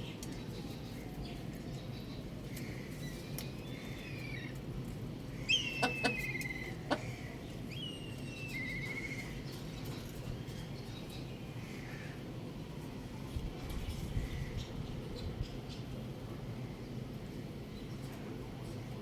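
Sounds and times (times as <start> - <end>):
young rooster chirping: 5.4 - 7.3.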